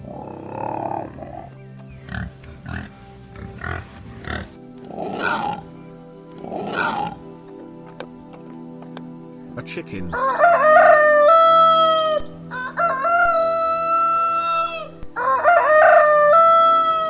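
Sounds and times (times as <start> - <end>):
pig grunting and squealing: 0.0 - 5.8, 6.4 - 7.3
background music: 0.0 - 17.0.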